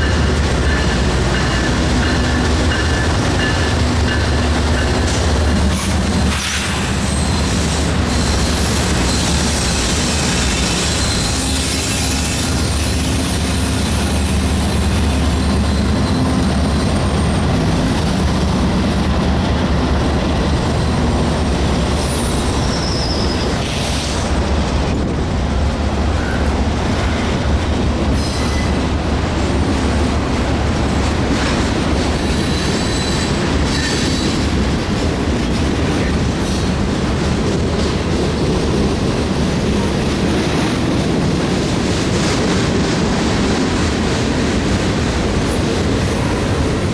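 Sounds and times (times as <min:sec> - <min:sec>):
train wheels rumbling on rail: 0:00.0 - 0:46.9
high wheel squeals: 0:06.9 - 0:17.7, 0:22.0 - 0:23.8.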